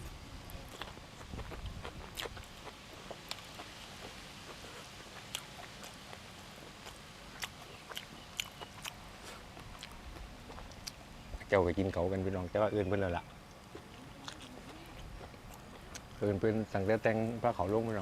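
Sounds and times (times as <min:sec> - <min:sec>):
person chewing: 0:00.7 - 0:11.0, 0:13.5 - 0:16.2.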